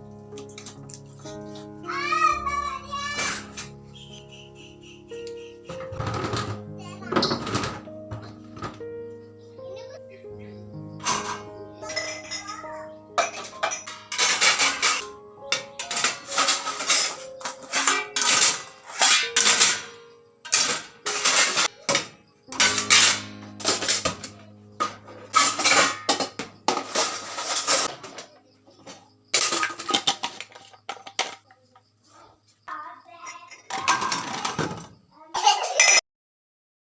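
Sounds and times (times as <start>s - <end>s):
dishes and cutlery clinking: 5.7s - 8.8s, 11.0s - 31.6s, 33.1s - 36.0s.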